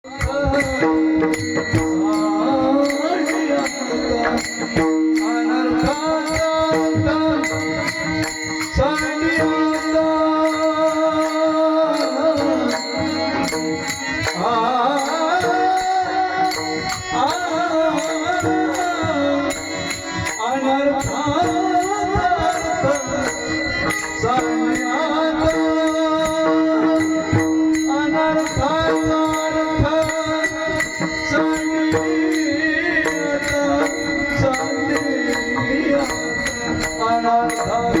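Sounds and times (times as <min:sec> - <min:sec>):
man singing devotional song: 0:00.0 - 0:38.0
rhythmic percussion strokes: 0:00.0 - 0:38.0.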